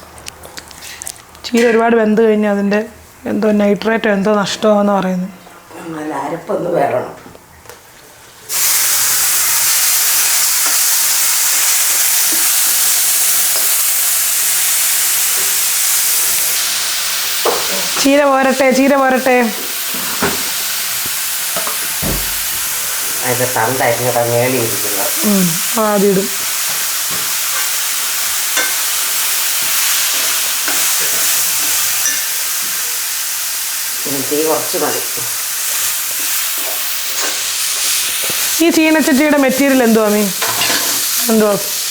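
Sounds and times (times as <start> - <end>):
paste sizzling in hot oil: 8.5 - 41.9
spoon scraping pan: 36.6 - 41.2.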